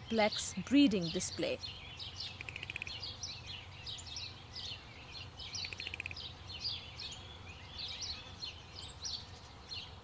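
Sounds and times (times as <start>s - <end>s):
buzzy bird trill: 0.0s - 6.8s
small birds chirping: 0.0s - 10.0s.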